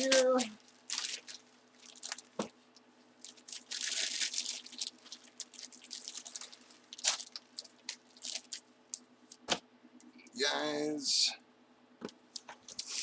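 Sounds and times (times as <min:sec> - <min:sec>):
card packaging rustling and crinkling: 0:00.0 - 0:02.5, 0:03.2 - 0:08.6.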